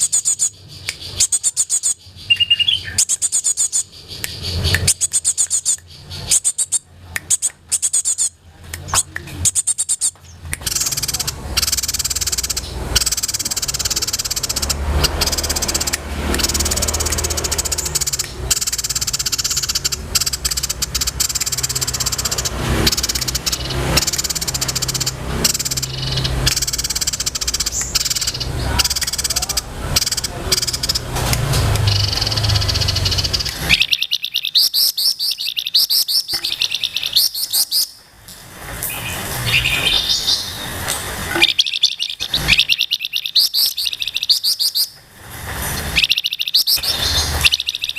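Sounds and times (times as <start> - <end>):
high-pitched pulsing bird trill: 0.0 - 8.4, 9.4 - 31.1, 31.8 - 38.0, 41.4 - 45.0, 46.0 - 47.9
songbird singing: 0.0 - 38.1, 38.8 - 47.9.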